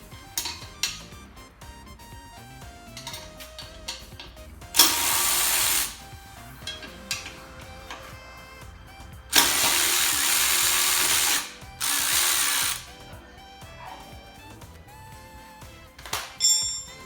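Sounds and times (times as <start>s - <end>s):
power tool running: 0.0s - 1.3s, 2.8s - 13.1s
background music: 0.0s - 17.0s.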